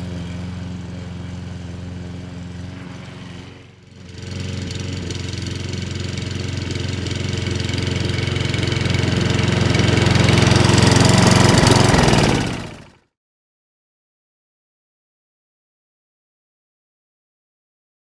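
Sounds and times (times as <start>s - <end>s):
lawn mower engine running: 0.0s - 13.0s.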